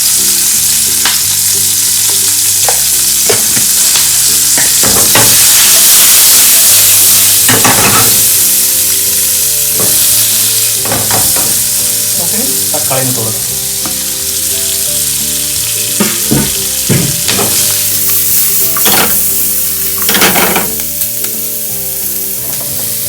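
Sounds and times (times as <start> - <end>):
vegetables sizzling in hot oil: 0.0 - 23.0
spoon scraping a pan: 7.4 - 8.4.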